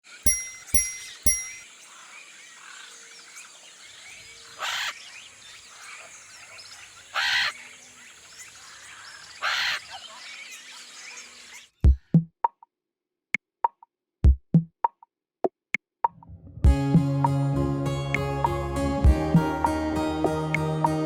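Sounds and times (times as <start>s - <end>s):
small birds chirping: 0.1s - 11.9s
loud harsh caws: 4.6s - 4.9s, 7.1s - 7.7s, 8.6s - 10.0s.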